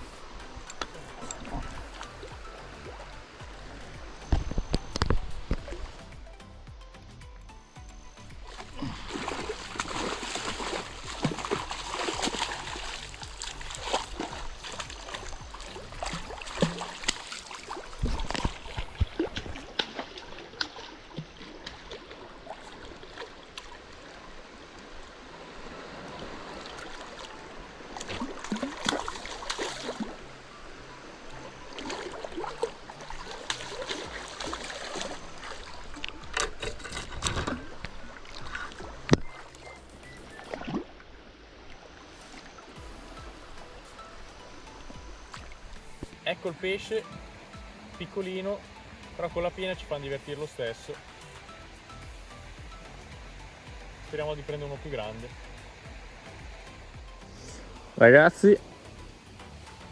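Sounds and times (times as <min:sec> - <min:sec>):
river water flowing: 0:00.0 - 0:59.9
short sharp splashes and knocks: 0:08.4 - 0:24.1, 0:26.1 - 0:30.2, 0:31.8 - 0:39.6.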